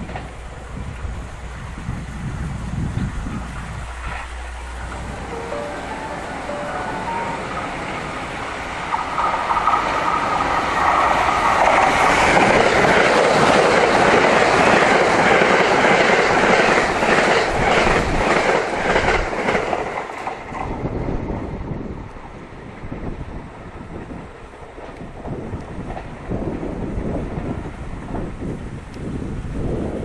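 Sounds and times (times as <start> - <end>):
train passing with rushing rumble: 0.0 - 30.0
wheels clacking over rail joints: 3.0 - 5.9, 6.8 - 21.0.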